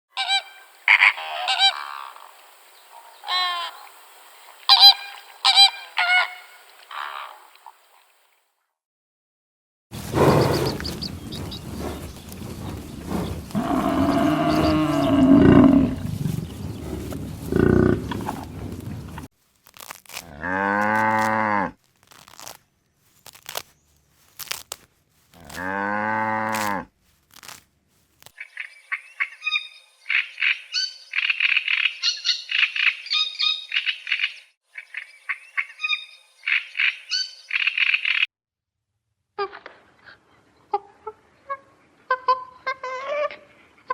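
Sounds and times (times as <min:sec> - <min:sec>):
low-pitched animal calls: 0:10.1 - 0:19.3
rapid high chirping calls: 0:10.2 - 0:17.0.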